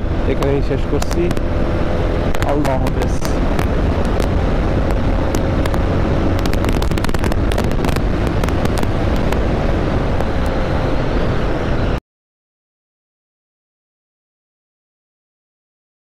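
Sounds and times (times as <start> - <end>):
motorcycle engine: 0.0 - 12.0
wind crackling on microphone: 0.0 - 12.0.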